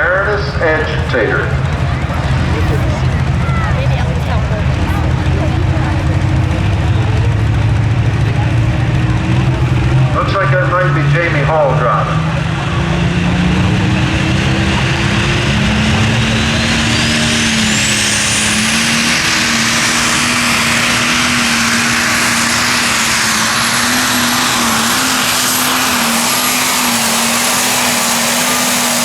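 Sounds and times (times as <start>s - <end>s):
tractor engine at full power: 0.0s - 29.0s.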